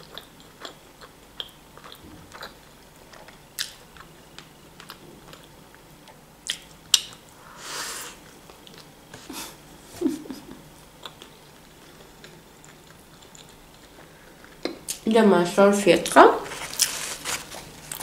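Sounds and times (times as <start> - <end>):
quiet chewing: 11.0 - 15.0.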